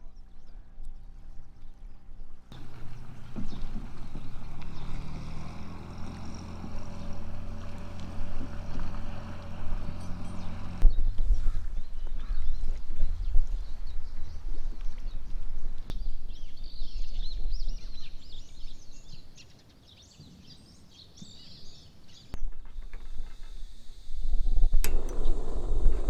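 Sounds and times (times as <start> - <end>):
low engine drone: 2.6 - 10.8, 24.8 - 26.0
hiss: 23.4 - 26.0.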